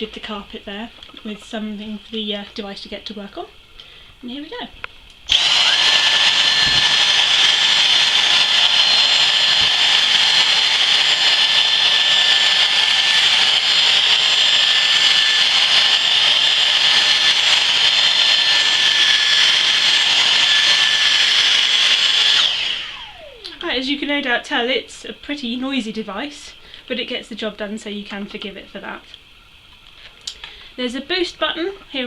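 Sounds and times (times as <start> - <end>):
handheld vacuum cleaner whine: 5.3 - 24.7.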